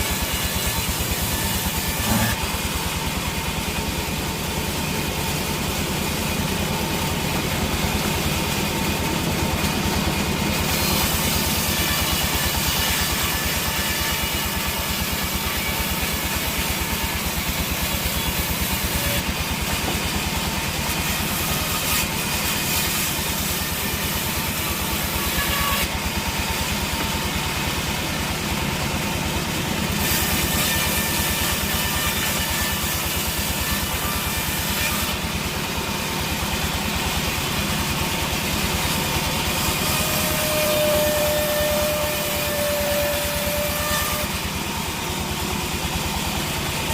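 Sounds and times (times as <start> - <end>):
machinery noise: 0.0 - 46.9
sawmill engine running: 0.0 - 46.9.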